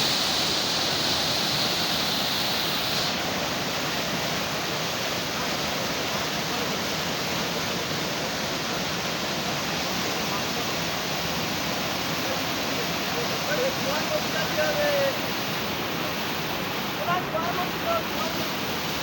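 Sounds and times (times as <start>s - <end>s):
high even hiss: 0.0s - 19.0s
steady rushing noise: 13.2s - 19.0s.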